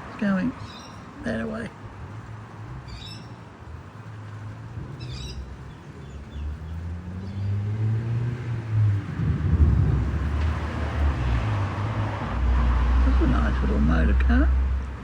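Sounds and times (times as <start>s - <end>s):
car engine approaching: 0.0s - 15.0s
road traffic hum: 0.0s - 15.0s
bird chirping: 0.6s - 1.2s, 2.9s - 3.4s, 4.9s - 7.7s.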